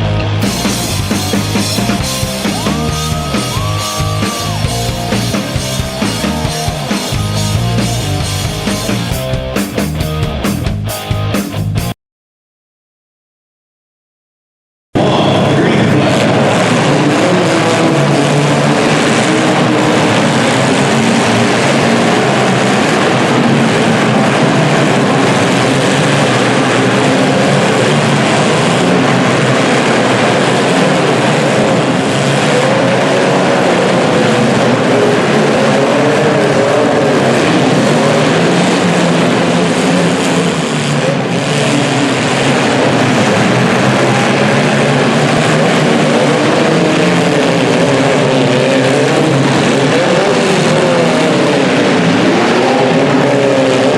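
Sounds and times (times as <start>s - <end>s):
car engines revving: 0.0s - 11.9s, 15.0s - 53.9s.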